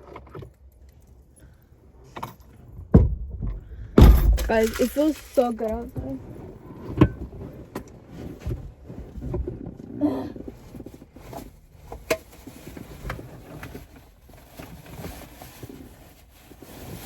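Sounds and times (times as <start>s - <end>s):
items being moved in a car: 0.0s - 17.0s.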